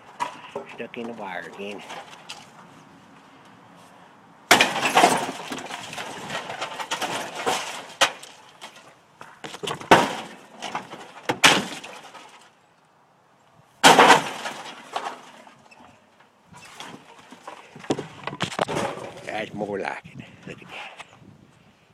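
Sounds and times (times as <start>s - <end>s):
debris breaking and clattering: 0.0s - 2.5s, 4.5s - 12.6s, 13.8s - 16.0s, 16.6s - 19.4s
sledgehammer striking refrigerator: 4.5s - 6.2s, 9.8s - 12.0s, 13.8s - 14.7s.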